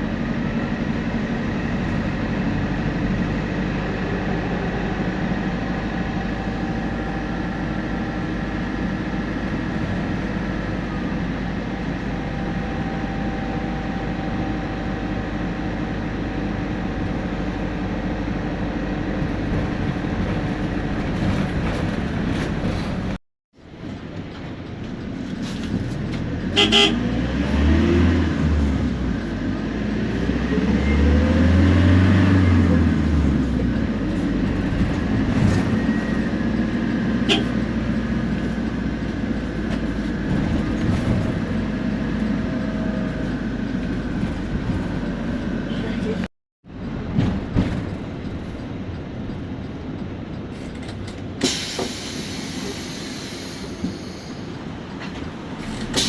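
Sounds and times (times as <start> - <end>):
bus diesel engine running: 0.0 - 56.0
short horn toot: 26.6 - 27.1, 37.2 - 37.6.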